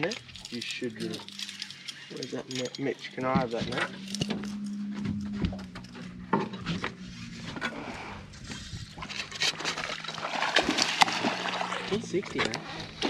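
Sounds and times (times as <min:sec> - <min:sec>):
fishing gear knocking and rattling: 0:00.0 - 0:06.9
steady low hum: 0:00.0 - 0:13.0.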